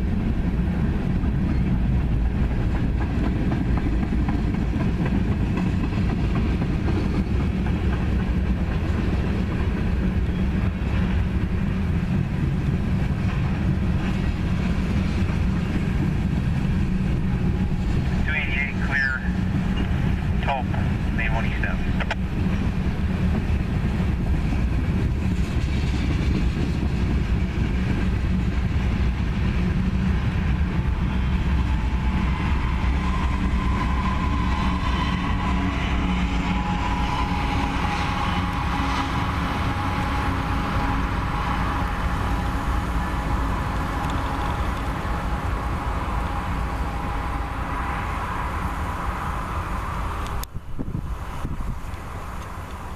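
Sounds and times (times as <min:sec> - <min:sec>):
freight train wheels rumbling on rail: 0:00.0 - 0:52.9
thin steady whine: 0:16.7 - 0:22.4.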